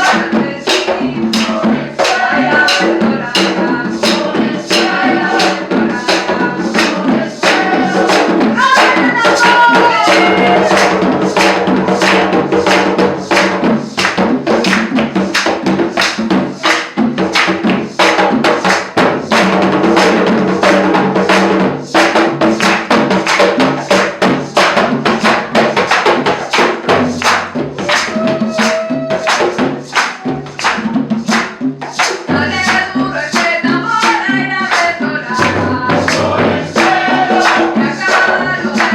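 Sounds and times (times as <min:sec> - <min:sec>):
voices singing: 0:00.0 - 0:13.6, 0:28.0 - 0:30.6, 0:32.1 - 0:38.9
live cumbia band playing: 0:00.0 - 0:38.9
steady percussion beat: 0:00.0 - 0:38.9.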